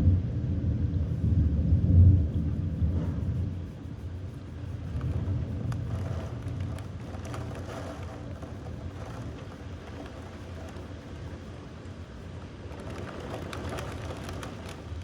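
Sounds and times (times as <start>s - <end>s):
thunder rumbling: 0.0s - 10.4s
faint ticks: 2.3s - 15.0s.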